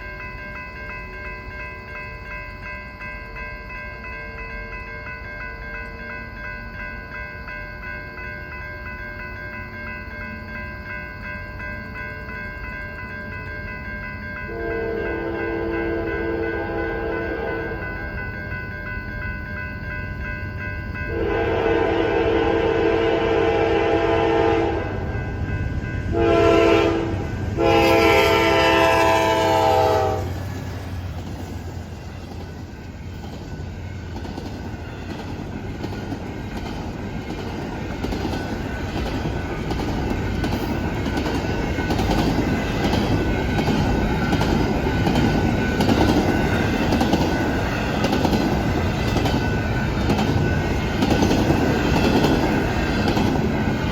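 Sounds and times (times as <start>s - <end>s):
train air horn blasts: 14.5s - 17.8s, 21.1s - 25.1s, 26.1s - 30.4s
train wheels clicking over rail joints: 28.8s - 53.9s.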